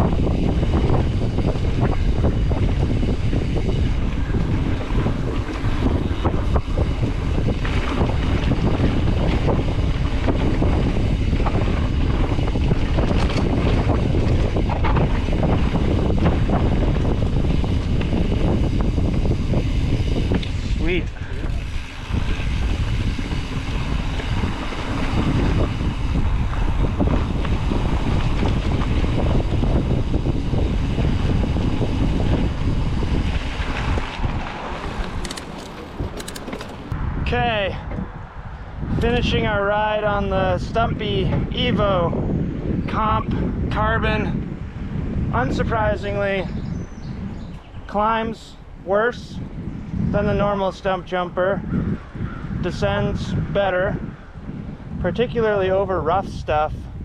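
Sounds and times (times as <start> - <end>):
tyres rumbling on dirt trail: 0.0 - 37.0
wind buffeting microphone: 0.0 - 57.0
bike clicks and rattles: 1.3 - 16.2, 34.8 - 37.0
short clicks: 35.2 - 37.0.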